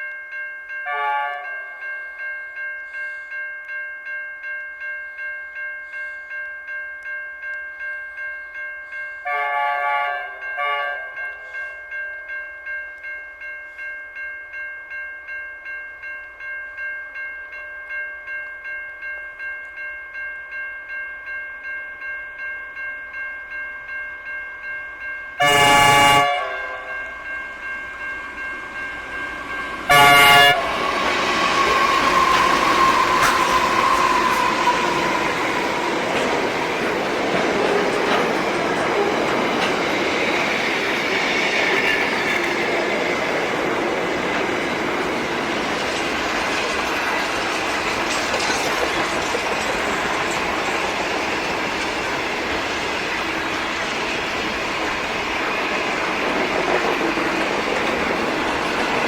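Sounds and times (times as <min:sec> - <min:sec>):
level crossing warning bell: 0:00.0 - 0:59.0
train engines and wheels on rails: 0:00.0 - 0:59.0
locomotive horn blasts: 0:00.8 - 0:01.6, 0:09.2 - 0:11.2, 0:25.4 - 0:27.0, 0:29.9 - 0:31.1.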